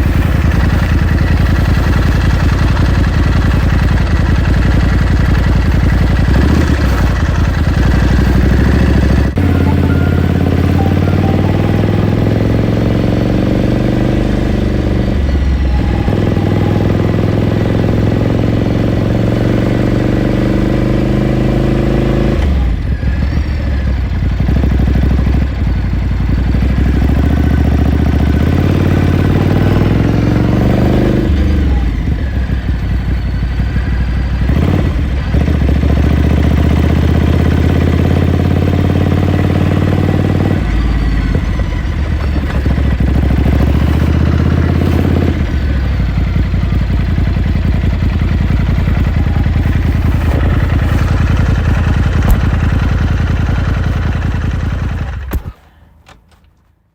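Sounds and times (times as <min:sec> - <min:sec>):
motorcycle engine accelerating: 0:00.0 - 0:55.7.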